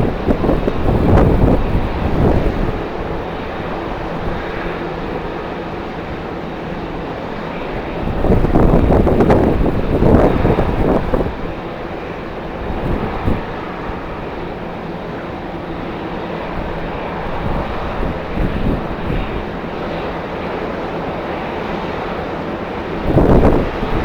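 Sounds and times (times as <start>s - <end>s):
wind on microphone: 0.0s - 5.4s, 7.5s - 14.6s, 16.2s - 20.1s, 22.9s - 24.0s
jet engines running: 0.0s - 24.0s.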